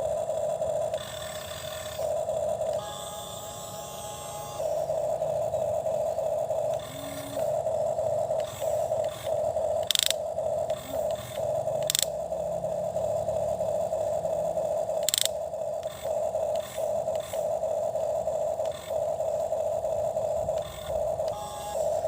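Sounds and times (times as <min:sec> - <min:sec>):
toy electric motor whining: 0:00.0 - 0:22.0
sharp plastic clicks: 0:08.3 - 0:12.2, 0:15.0 - 0:19.7.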